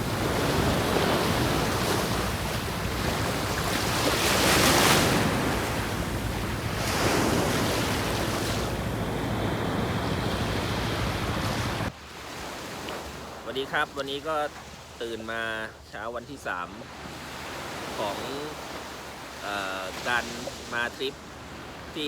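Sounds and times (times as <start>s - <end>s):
wind buffeting microphone: 0.0s - 11.9s
sea waves washing onto beach: 0.0s - 15.8s, 16.4s - 22.0s.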